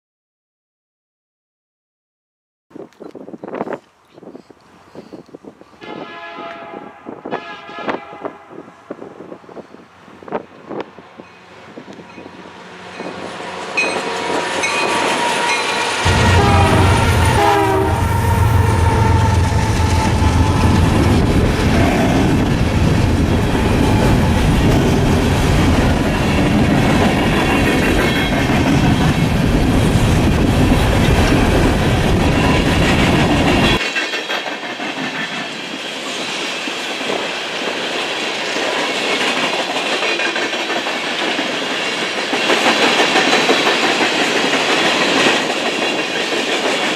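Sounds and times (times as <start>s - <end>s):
train horn: 5.8s - 9.0s, 13.8s - 22.3s
diesel locomotive rumble: 9.0s - 33.8s
railcars clattering over rail joints: 10.3s - 46.9s.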